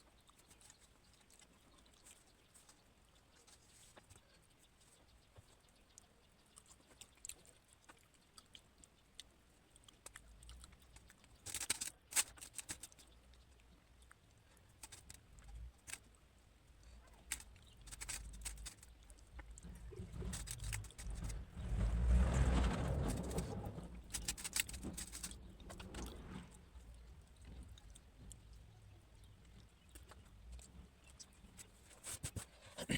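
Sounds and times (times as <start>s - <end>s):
eating clicks and smacks: 0.0s - 21.3s.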